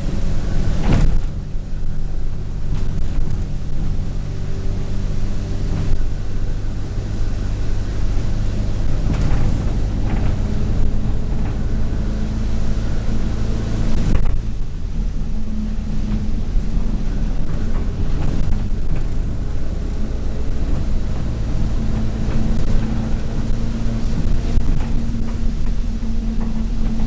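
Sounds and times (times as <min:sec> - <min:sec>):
bus diesel engine with turbo whine: 0:00.0 - 0:27.0
body rattles and knocks: 0:00.7 - 0:01.6, 0:08.8 - 0:12.9, 0:16.0 - 0:27.0.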